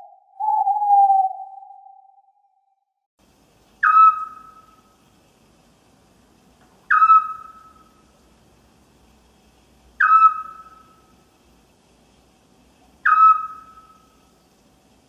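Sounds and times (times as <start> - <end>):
owl whistled calls: 0.0 - 2.3, 3.8 - 4.9, 6.9 - 8.0, 10.0 - 11.1, 13.0 - 14.2.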